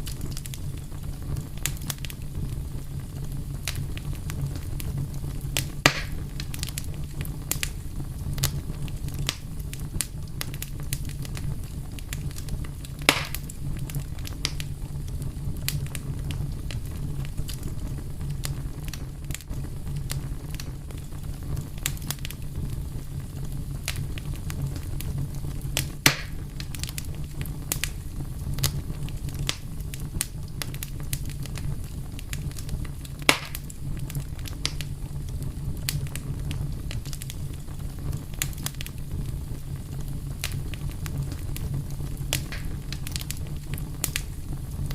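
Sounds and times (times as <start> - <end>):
fire crackling: 0.0 - 44.9
fire pops: 0.0 - 44.9.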